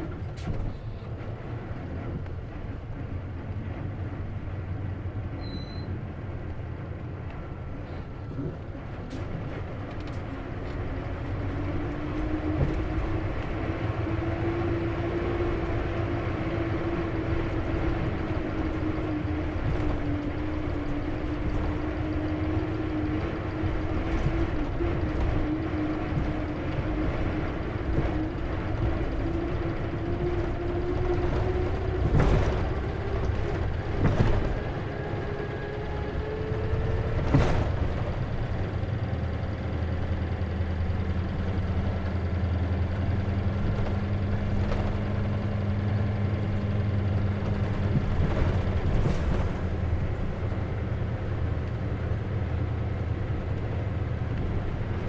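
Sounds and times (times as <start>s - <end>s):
bus engine rumble: 0.0s - 55.0s
steady transmission whine: 0.0s - 55.0s.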